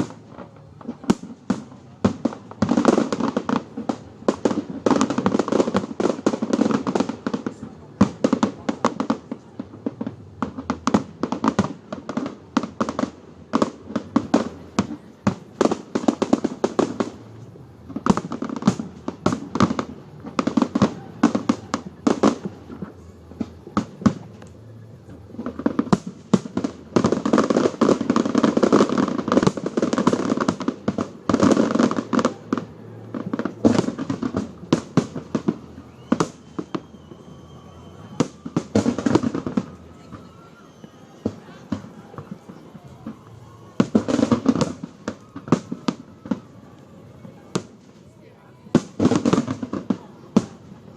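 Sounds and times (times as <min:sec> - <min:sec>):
fireworks bangs and crackles: 0:00.0 - 0:50.9.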